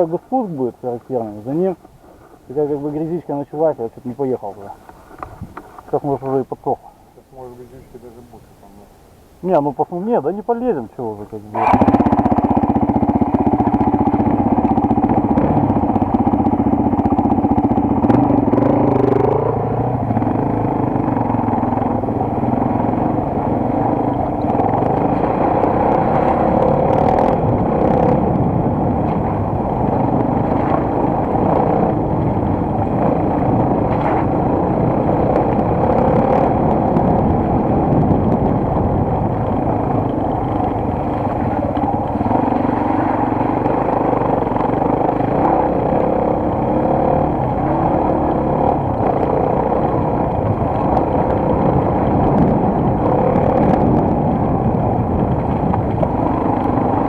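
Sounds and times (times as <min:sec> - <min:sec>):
motorcycle engine running: 0:10.5 - 0:57.0.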